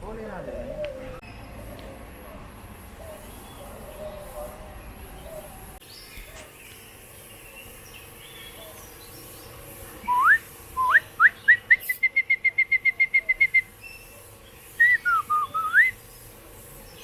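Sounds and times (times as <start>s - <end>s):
bird whistling song: 10.0s - 16.2s.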